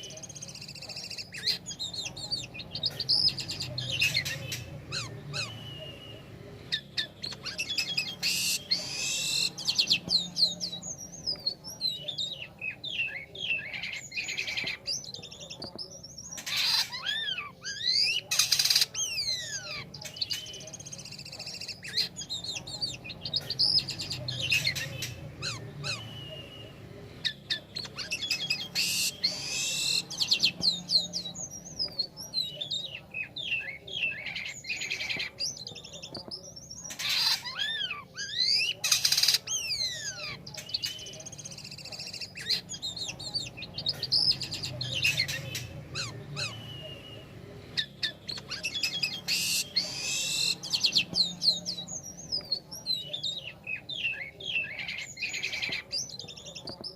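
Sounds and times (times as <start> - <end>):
harsh rasping bird notes: 0.0 - 15.0, 16.3 - 31.9
starling singing chirps and whistles: 0.0 - 56.9.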